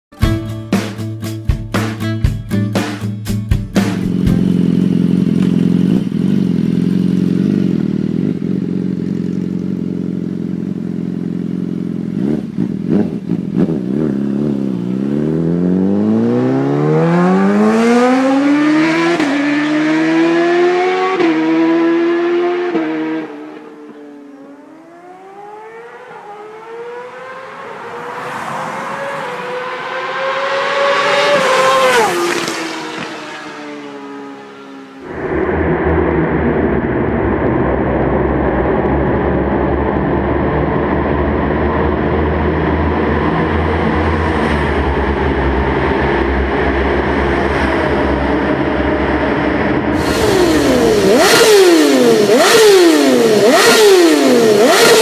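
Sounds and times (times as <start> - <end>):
motorcycle engine idling and accelerating: 2.8 - 55.0
motorcycle passing by: 11.4 - 36.7, 49.7 - 55.0.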